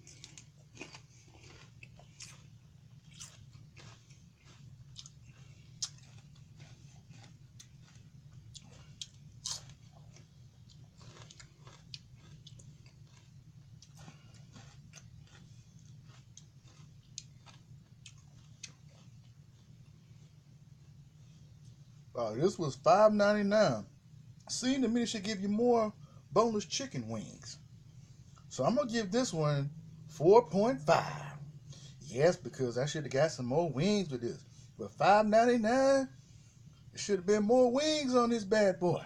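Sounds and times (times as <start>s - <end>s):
person crunching and chewing: 0.0s - 21.8s
steady low hum: 0.0s - 39.0s.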